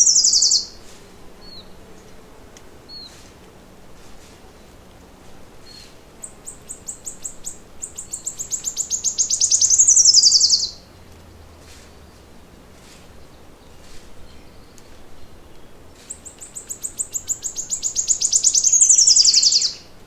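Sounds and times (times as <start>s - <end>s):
faint bird chirps: 0.0s - 0.8s, 5.6s - 10.9s, 13.6s - 19.9s
songbird trilling: 0.0s - 0.8s, 5.6s - 10.9s, 13.7s - 20.0s.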